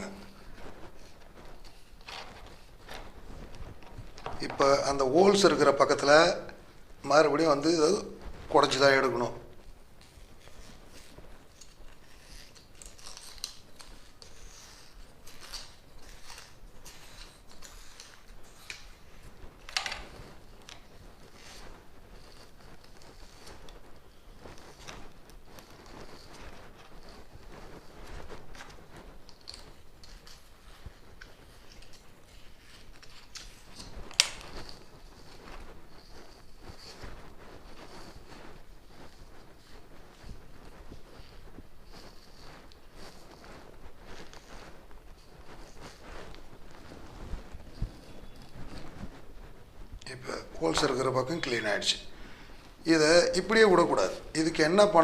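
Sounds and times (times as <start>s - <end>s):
scratchy cutting of fibre blanket: 9.9s - 52.4s.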